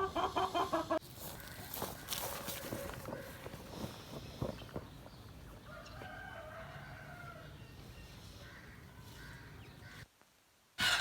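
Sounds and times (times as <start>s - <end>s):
rooster crowing: 5.7s - 7.5s.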